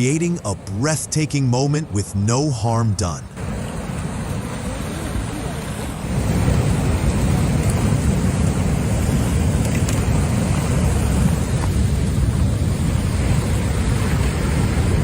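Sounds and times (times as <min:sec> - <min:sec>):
loud low rumble with hiss: 0:00.0 - 0:15.0.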